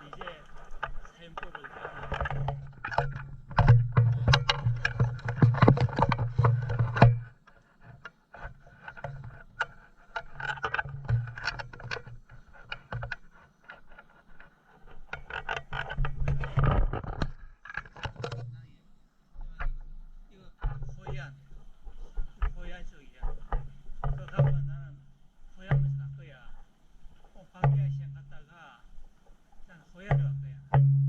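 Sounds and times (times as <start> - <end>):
people talking indistinctly: 0.0 - 2.3
clicks and handling noise: 0.0 - 18.7, 19.3 - 25.0.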